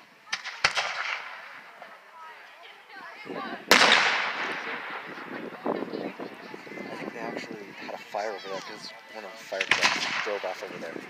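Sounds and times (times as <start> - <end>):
firework bangs: 3.7 - 5.6, 9.6 - 10.7.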